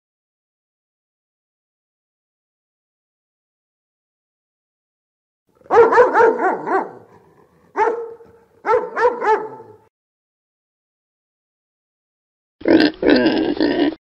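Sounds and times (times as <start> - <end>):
dog barking: 5.6 - 9.9.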